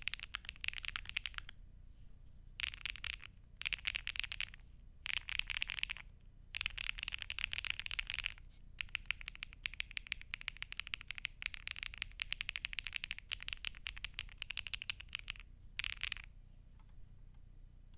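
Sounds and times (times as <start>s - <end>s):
mechanical keyboard typing clacks: 0.0s - 1.5s, 2.6s - 16.3s.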